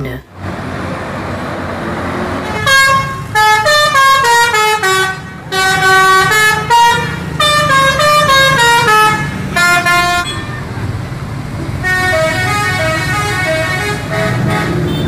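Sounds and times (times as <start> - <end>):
musical bus horn melody: 2.4 - 10.8, 11.8 - 15.0.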